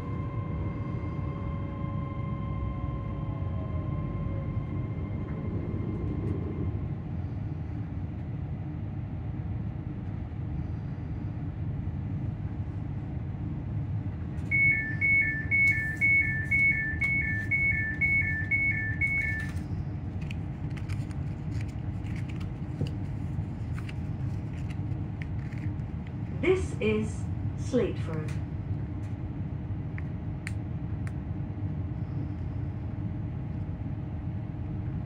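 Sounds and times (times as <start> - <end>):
faint motor whine: 0.0 - 35.0
train rumbling: 0.0 - 35.0
two-tone door warning beep: 14.5 - 19.5.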